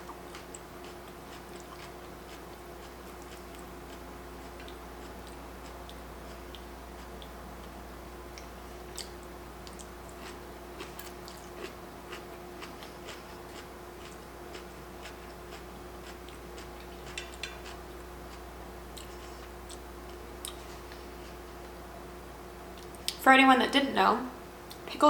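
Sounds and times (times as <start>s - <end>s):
person chewing with mouth clicks: 0.0s - 7.4s, 8.3s - 21.0s
steady low hum: 0.0s - 25.0s.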